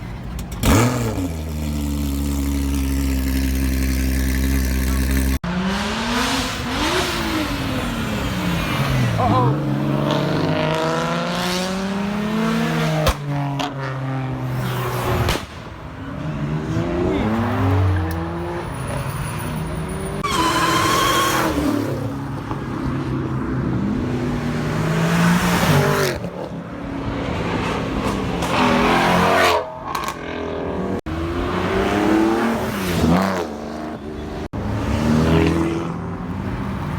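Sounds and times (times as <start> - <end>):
cars accelerating hard: 0.6 - 15.4, 16.1 - 36.9
tires squealing: 16.6 - 22.4.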